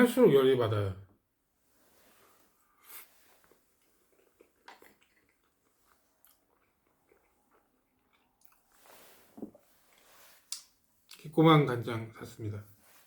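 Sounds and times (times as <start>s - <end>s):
soft rustle: 1.6s - 4.1s, 8.6s - 10.9s, 12.6s - 13.0s.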